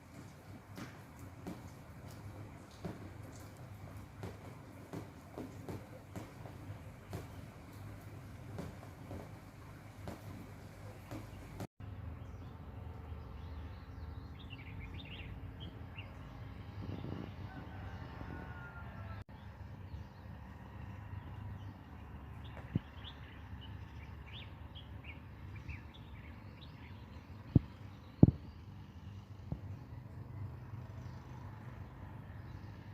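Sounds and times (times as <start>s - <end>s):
low outdoor rumble: 0.0s - 32.9s
sharp knocks: 0.2s - 11.7s
small birds chirping: 1.4s - 17.3s, 19.3s - 31.6s.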